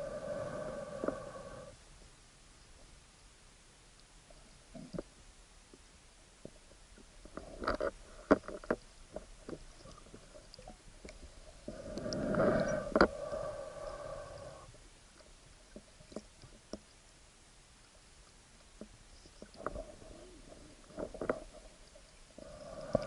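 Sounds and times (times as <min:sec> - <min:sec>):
steady hum: 0:00.0 - 0:08.4, 0:09.0 - 0:23.0
small underwater clicks and knocks: 0:03.9 - 0:13.2, 0:14.7 - 0:17.1, 0:17.8 - 0:23.0.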